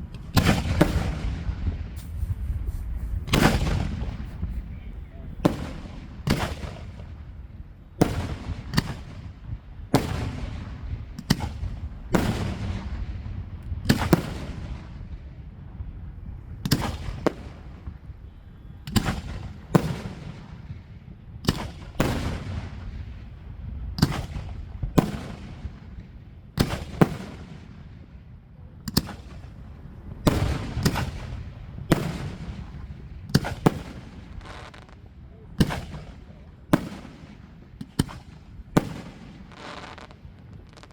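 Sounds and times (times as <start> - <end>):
low rumbling echoes: 0.0 - 8.0
fireworks shells bursting: 2.0 - 4.8.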